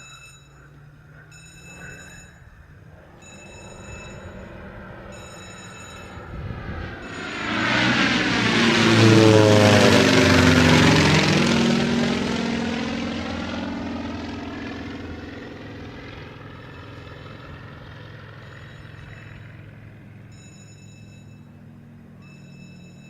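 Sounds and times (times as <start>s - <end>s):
aircraft flying past low: 0.5s - 23.0s.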